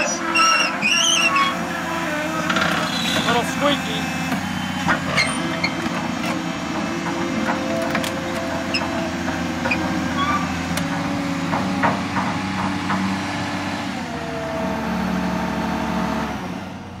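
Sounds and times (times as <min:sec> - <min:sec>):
excavator diesel engine running: 0:00.0 - 0:17.0
metal knocks and clanks: 0:04.8 - 0:13.4.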